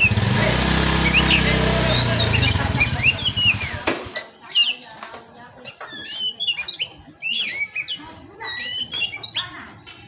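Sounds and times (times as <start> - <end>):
engine running: 0.0 - 3.9
songbird chirping: 0.0 - 10.0.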